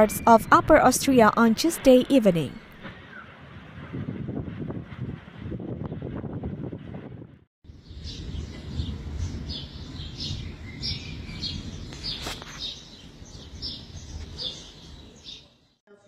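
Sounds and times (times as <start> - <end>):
small birds chirping: 7.7 - 15.8.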